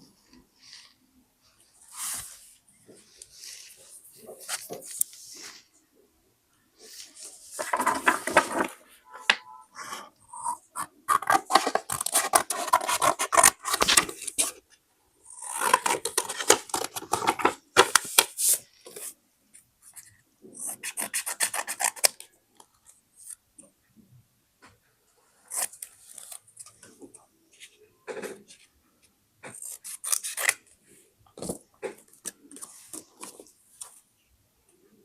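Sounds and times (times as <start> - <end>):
paper rustling: 6.9 - 9.3, 11.2 - 14.6, 15.6 - 19.1.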